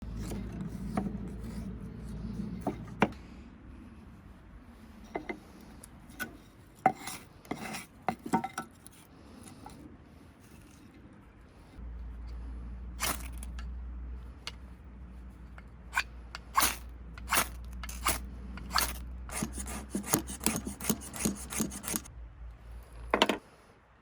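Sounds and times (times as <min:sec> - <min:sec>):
scraping rub: 0:00.0 - 0:03.2, 0:14.3 - 0:22.1
low hum: 0:00.0 - 0:05.9, 0:11.3 - 0:24.0.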